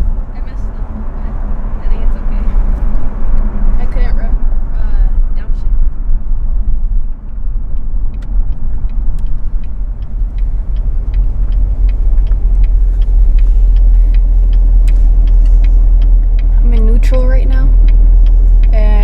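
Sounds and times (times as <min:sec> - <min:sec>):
car engine and road rumble: 0:00.0 - 0:19.0
light regular ticking: 0:05.8 - 0:19.0.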